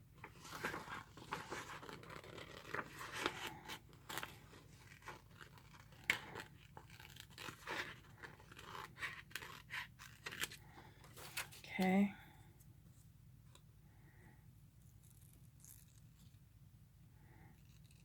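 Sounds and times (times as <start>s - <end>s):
paper rustling and crinkling: 0.2s - 11.6s.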